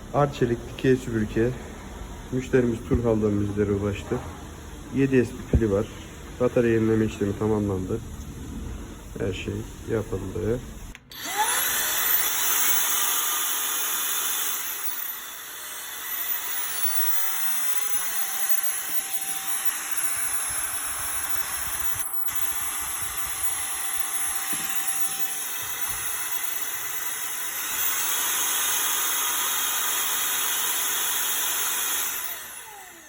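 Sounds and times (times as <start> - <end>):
vacuum motor whining: 11.0 - 33.0.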